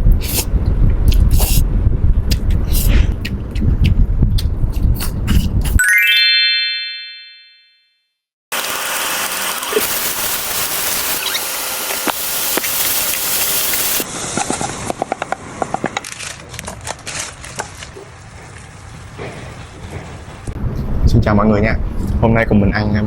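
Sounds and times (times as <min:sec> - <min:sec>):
food sizzling in a pan: 0:08.5 - 0:14.2
sharp crackles and pops: 0:09.2 - 0:14.0.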